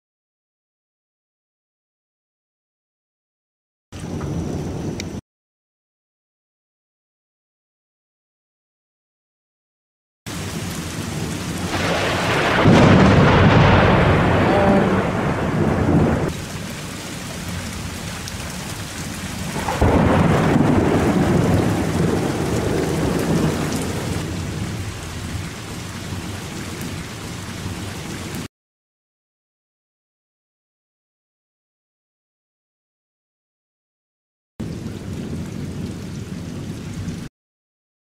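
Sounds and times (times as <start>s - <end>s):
steady rain: 4.0s - 5.2s, 10.3s - 28.5s, 34.6s - 37.3s
thunder rolling: 4.0s - 5.2s, 10.3s - 27.0s.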